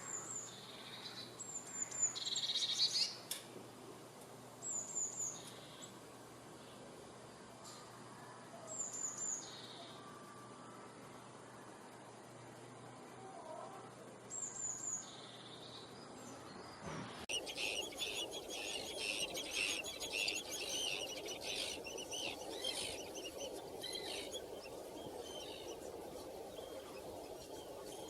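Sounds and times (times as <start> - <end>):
small birds chirping: 14.3 - 28.0.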